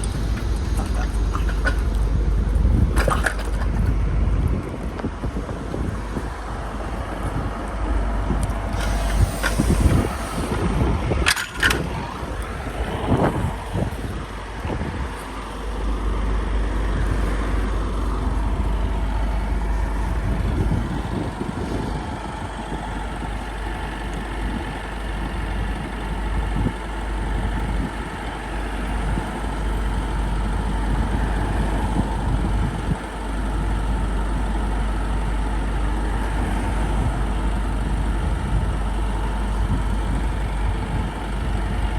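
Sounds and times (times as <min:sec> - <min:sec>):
bus engine rumble: 0:00.0 - 0:41.9.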